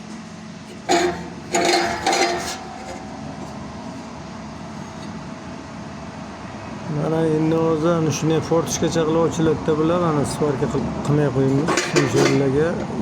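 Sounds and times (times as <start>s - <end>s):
low background hum: 0.0s - 13.0s
metal parts clinking: 0.8s - 3.2s.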